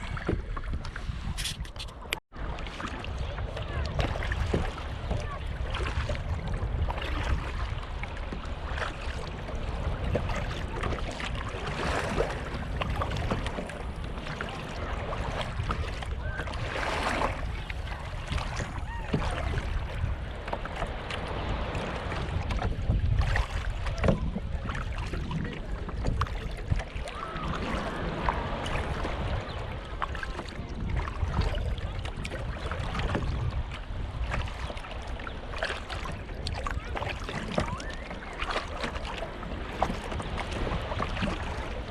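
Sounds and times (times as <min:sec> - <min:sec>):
paddle splashes: 0:00.0 - 0:41.9
water sloshing against hull: 0:00.0 - 0:41.9
wind rumble on microphone: 0:00.0 - 0:41.9.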